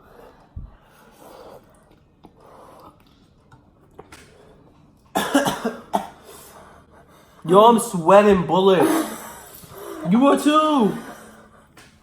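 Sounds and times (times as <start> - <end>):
heavy breathing and sniffing: 0.0 - 3.4, 6.1 - 8.0, 8.7 - 12.0.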